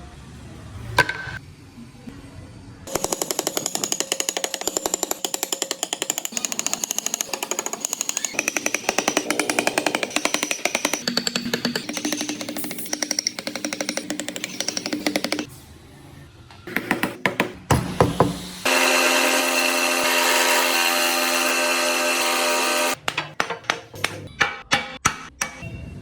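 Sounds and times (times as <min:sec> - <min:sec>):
power carving tool rattling on wood: 0:02.9 - 0:15.5, 0:18.0 - 0:23.8.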